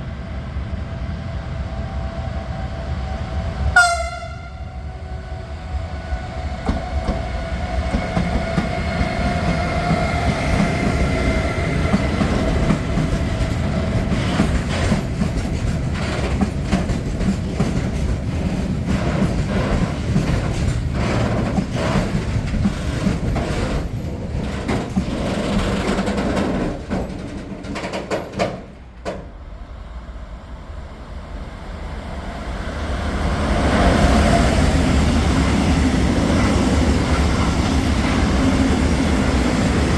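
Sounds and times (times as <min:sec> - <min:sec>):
train rumble: 0:00.0 - 0:39.9
train horn: 0:03.6 - 0:07.0
train wheels clattering over rails: 0:06.2 - 0:29.6.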